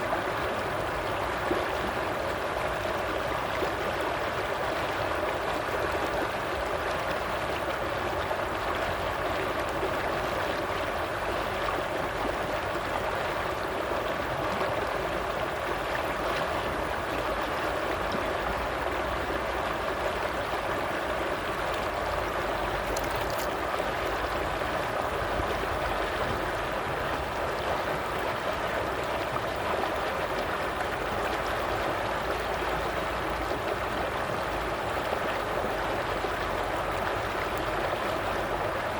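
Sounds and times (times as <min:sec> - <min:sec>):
stream babbling: 0:00.0 - 0:38.9.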